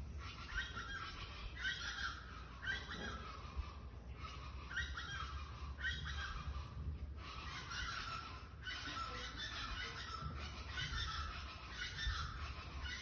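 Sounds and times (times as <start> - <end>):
birds calling harshly: 0.0 - 13.0.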